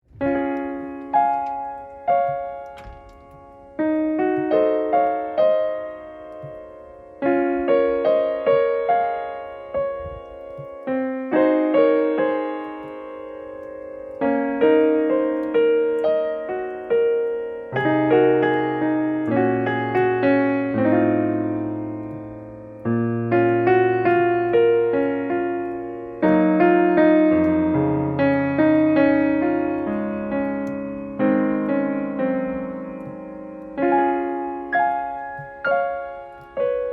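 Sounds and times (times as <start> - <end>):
gentle piano melody: 0.0 - 36.9.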